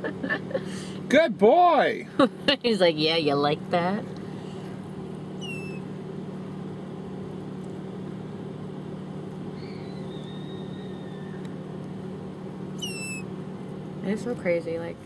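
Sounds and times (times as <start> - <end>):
faint high whistle: 9.6 - 11.4, 12.8 - 13.2.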